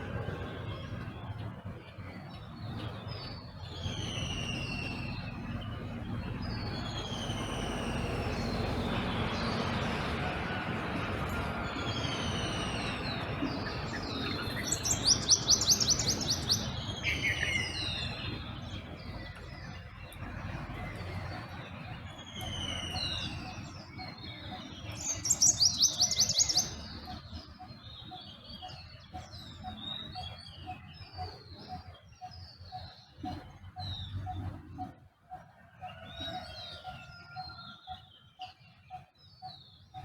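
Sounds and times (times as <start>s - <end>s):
birds whistling: 3.2s - 10.4s, 11.6s - 19.9s, 20.8s - 34.9s
rapid bird trill: 3.4s - 10.8s, 11.5s - 19.9s, 20.7s - 40.0s.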